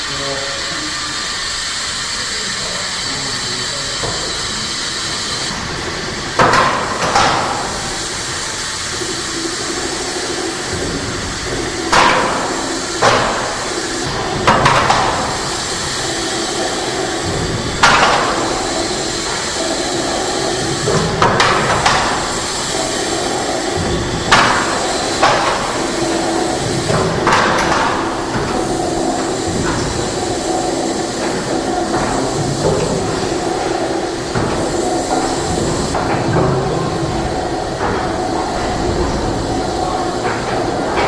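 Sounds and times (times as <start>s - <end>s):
machinery hiss: 0.0s - 41.0s
sharp loud knocks: 10.7s - 37.0s.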